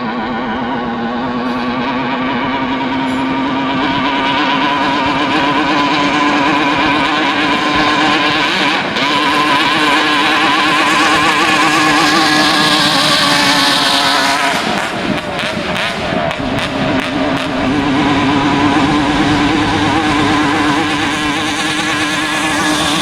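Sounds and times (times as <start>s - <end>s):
jet-ski engine buzzing: 0.0s - 23.0s.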